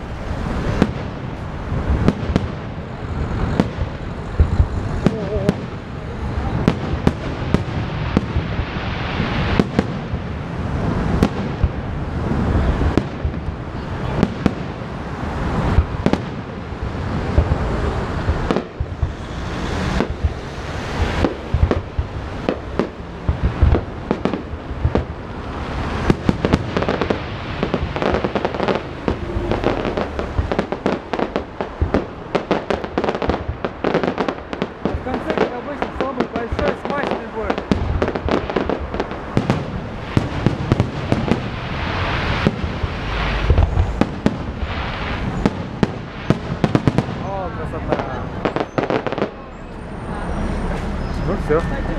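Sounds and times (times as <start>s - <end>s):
fireworks bangs and crackles: 0.0s - 51.9s
fireworks rumble: 0.0s - 51.9s
fireworks pops: 17.2s - 25.2s, 26.0s - 47.2s.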